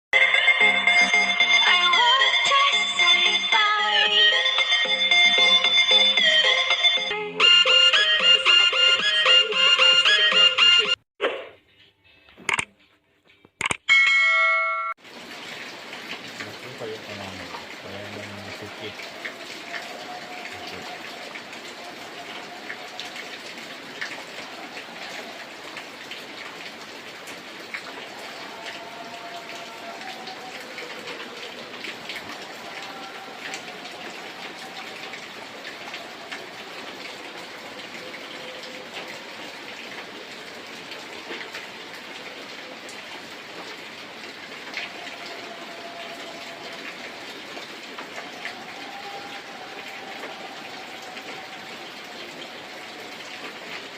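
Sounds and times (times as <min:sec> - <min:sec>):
steady rain: 0:00.2 - 0:10.1, 0:15.0 - 0:53.9.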